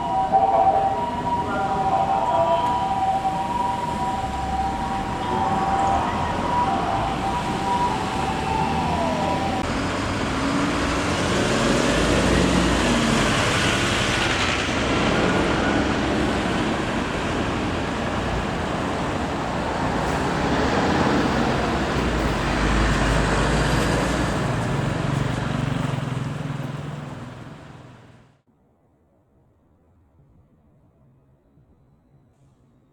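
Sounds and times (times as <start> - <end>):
fire engine siren: 0.0 - 26.0
engine and road noise: 0.0 - 28.5.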